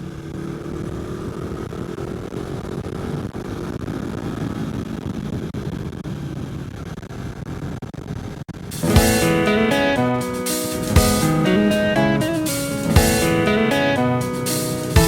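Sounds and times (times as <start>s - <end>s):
motorcycle engine running: 0.0s - 5.0s, 11.0s - 13.9s.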